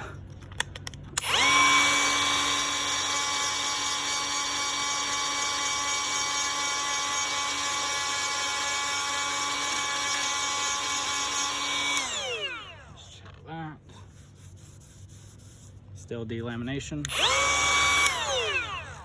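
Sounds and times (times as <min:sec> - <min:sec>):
rotary grinding tool whining: 0:01.2 - 0:13.5, 0:16.9 - 0:19.0.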